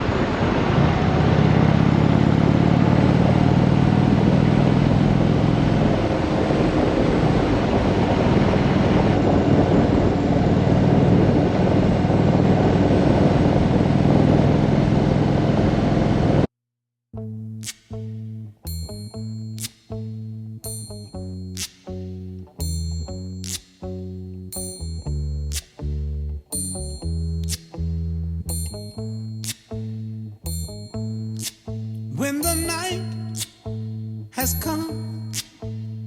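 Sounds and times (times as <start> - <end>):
constant rushing noise: 0.0 - 16.5
motorcycle engine running: 0.6 - 16.5.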